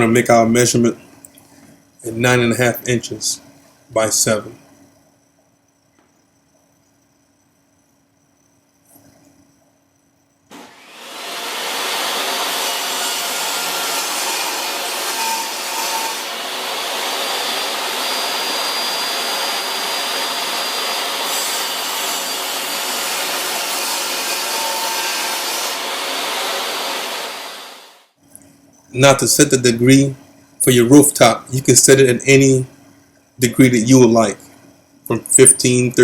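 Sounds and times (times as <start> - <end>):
power saw cutting plywood: 10.5 - 28.0.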